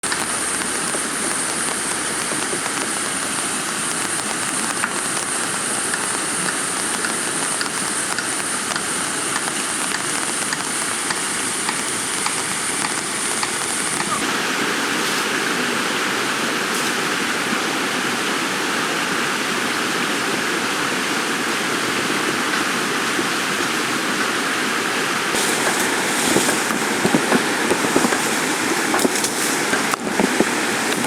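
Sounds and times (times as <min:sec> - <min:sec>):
raindrops clicking close by: 0:00.0 - 0:14.3, 0:25.3 - 0:31.0
heavy rain falling: 0:00.0 - 0:31.0.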